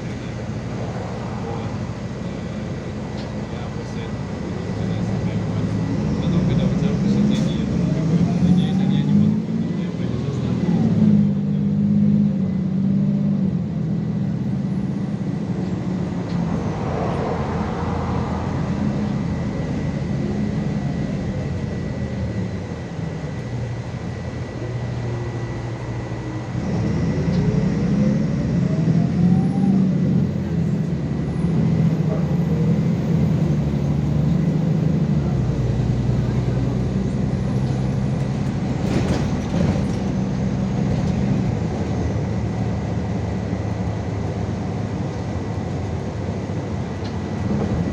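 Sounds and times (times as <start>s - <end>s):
bus engine and road drone: 0.0s - 47.9s
rising whine of bus pulling away: 0.0s - 47.9s.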